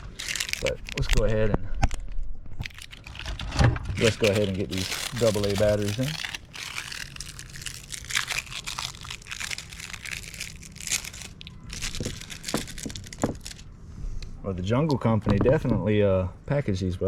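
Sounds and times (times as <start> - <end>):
plastic packaging crinkling: 0.0 - 1.4, 2.6 - 13.7.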